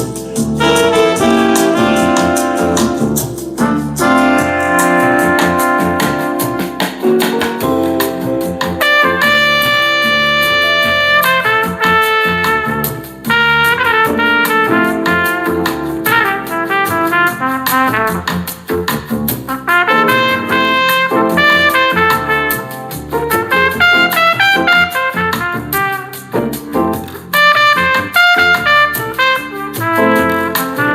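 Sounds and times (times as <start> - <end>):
bass line: 0.0 - 30.9
jazz trumpet: 0.0 - 30.9.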